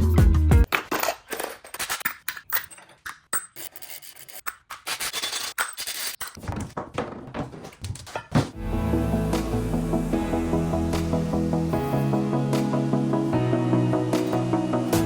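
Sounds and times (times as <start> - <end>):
music: 0.0 - 0.7, 8.6 - 15.0
metal tools clicking and scraping: 0.9 - 6.4.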